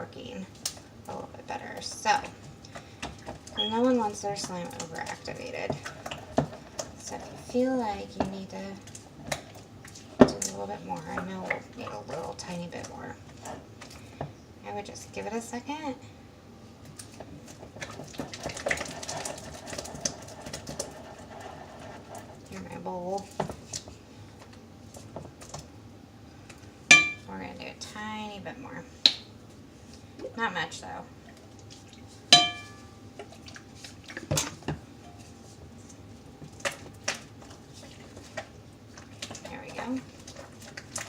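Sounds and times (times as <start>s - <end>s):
faint steady tone: 32.3s - 33.0s
utensil tapping a bowl: 32.4s - 32.8s.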